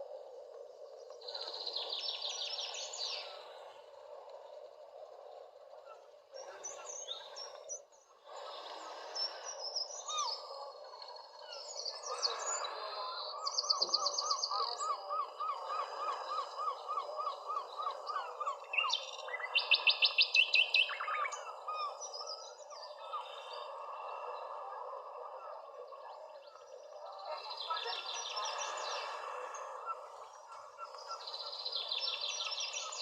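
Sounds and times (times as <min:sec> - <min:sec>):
birds chirping: 0:05.6 - 0:33.0.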